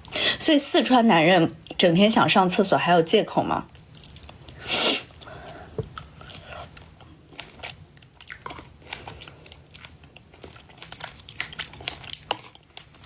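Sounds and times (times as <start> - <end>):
chewing and crunching cereal: 3.6 - 13.0.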